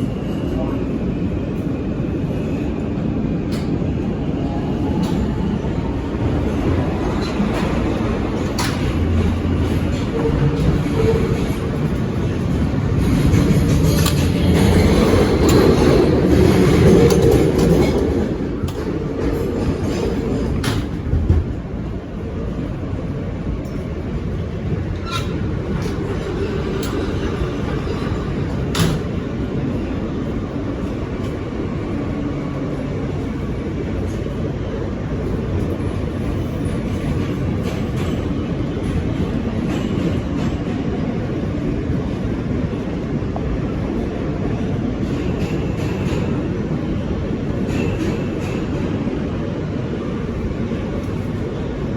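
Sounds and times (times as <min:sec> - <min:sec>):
subway train wheels rumbling: 0:00.0 - 0:51.9
sharp clicks of wheels on rail: 0:07.1 - 0:21.6.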